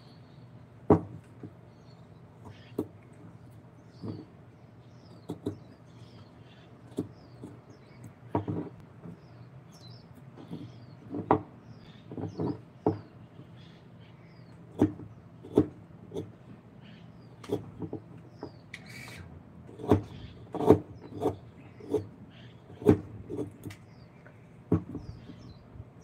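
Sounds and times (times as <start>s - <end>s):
small birds chirping: 0.0s - 26.0s
knocks and clicks on wood: 5.2s - 5.7s, 6.9s - 8.8s, 14.7s - 16.3s, 17.4s - 18.6s, 24.7s - 25.4s.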